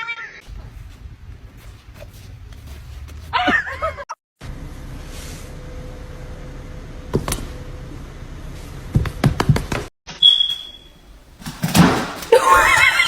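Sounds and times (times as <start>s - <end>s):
knocks and bumps: 11.3s - 13.0s.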